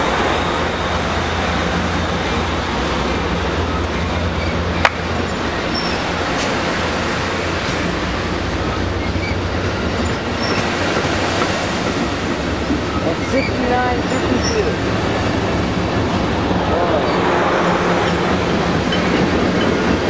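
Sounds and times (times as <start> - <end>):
train wheels rumbling on rails: 0.0 - 20.0
high wheel squeaks: 3.6 - 15.6, 18.0 - 20.0.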